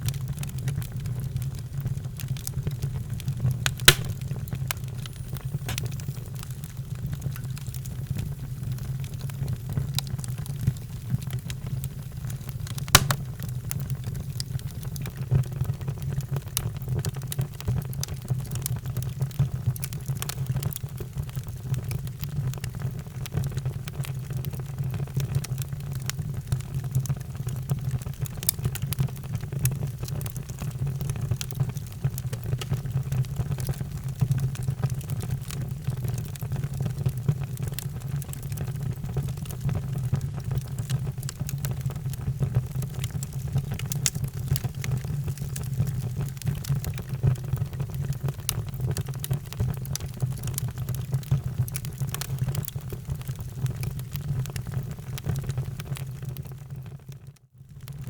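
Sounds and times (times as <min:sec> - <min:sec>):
wood fire crackling and popping: 0:00.0 - 0:57.2.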